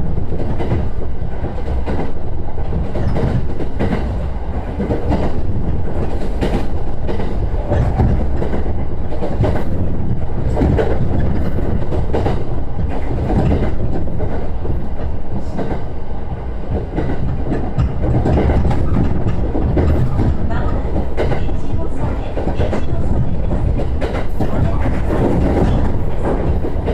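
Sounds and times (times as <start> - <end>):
train running rumble: 0.0 - 26.9
wheels clicking over rail joints: 0.2 - 15.9, 16.7 - 26.9.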